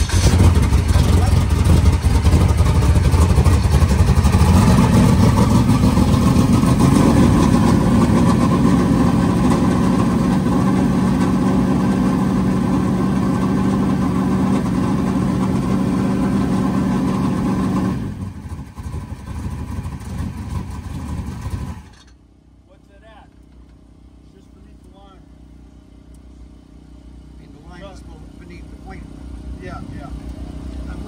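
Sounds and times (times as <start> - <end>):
race car engine idling: 0.0 - 21.9.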